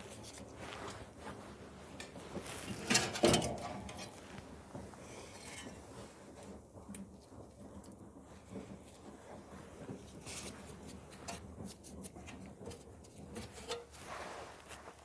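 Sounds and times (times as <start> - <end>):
parts clattering: 2.0 - 4.4
clicks and scraping of parts: 2.7 - 4.2, 13.4 - 14.0.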